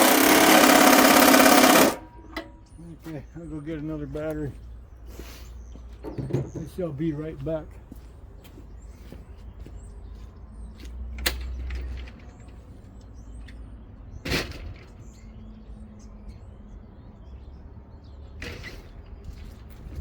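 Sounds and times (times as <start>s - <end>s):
birds chirping faintly: 1.4s - 14.2s.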